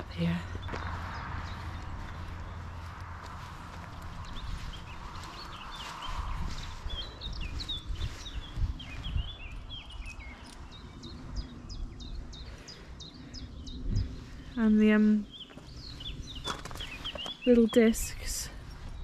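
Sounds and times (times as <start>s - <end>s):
low rumble: 0.0s - 17.0s
wild birds singing: 0.0s - 19.0s.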